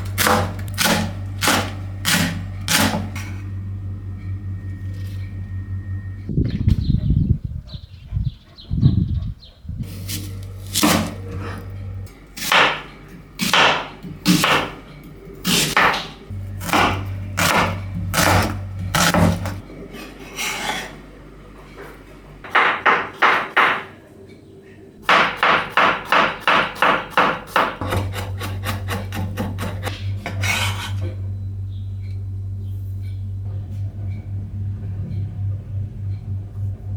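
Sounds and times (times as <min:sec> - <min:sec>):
knife chopping on wooden board: 0:12.4 - 0:12.8.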